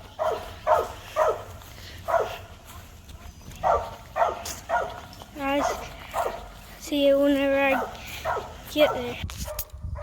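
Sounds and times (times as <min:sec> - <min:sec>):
dog barking: 0:00.2 - 0:02.5, 0:03.6 - 0:06.5, 0:07.7 - 0:10.0.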